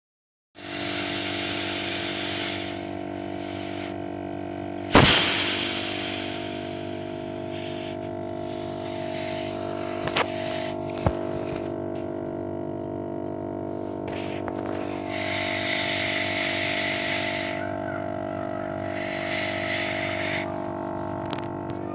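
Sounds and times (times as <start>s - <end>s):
sudden rush of gas: 0.6s - 11.0s, 14.8s - 17.8s, 18.7s - 20.6s
pressurised gas hissing through pipes: 0.6s - 11.7s, 14.1s - 21.7s
mechanical hum: 0.6s - 21.9s.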